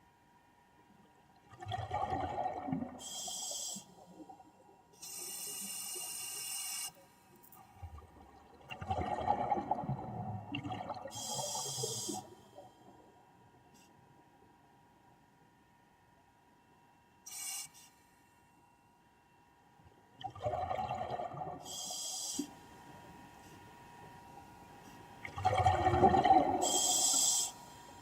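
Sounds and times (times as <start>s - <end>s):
regulator bubbling and gurgling: 1.4s - 4.6s, 7.6s - 12.3s, 20.2s - 22.1s, 25.2s - 27.5s
demand valve hissing: 26.6s - 27.5s.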